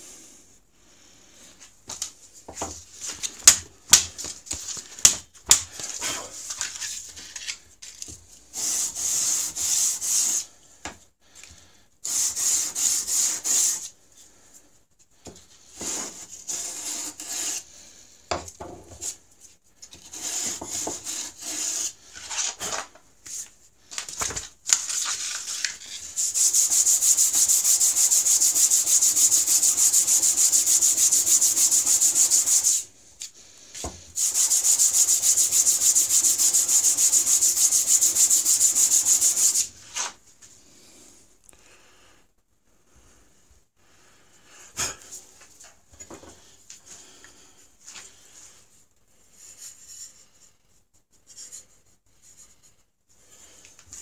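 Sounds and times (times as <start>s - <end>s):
stone scraping on sandpaper: 15.8s - 17.6s, 24.9s - 32.8s, 34.2s - 40.2s.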